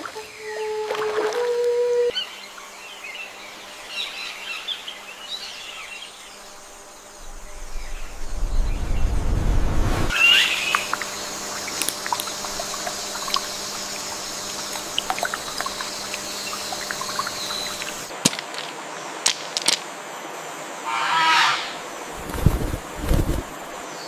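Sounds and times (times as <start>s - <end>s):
steady hiss: 2.6s - 18.2s, 21.7s - 24.0s.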